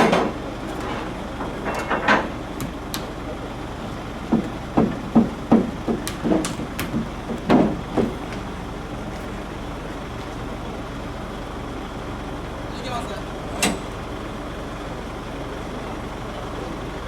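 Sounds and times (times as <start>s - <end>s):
knocks and clatters: 0.0s - 3.2s, 4.3s - 8.5s
vehicle engine humming: 0.0s - 17.0s.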